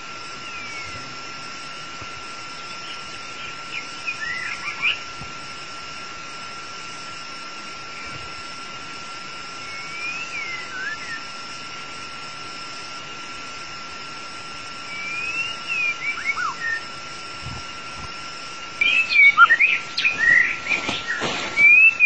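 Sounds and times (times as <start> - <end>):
steady high hiss: 0.0 - 22.0
bird singing whistled phrases: 2.8 - 5.0, 10.0 - 11.2, 14.9 - 16.9, 18.8 - 22.0.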